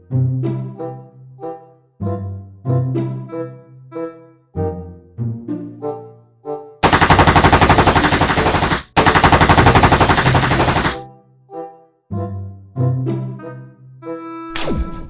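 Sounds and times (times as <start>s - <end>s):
machine gun automatic fire: 6.8s - 11.0s.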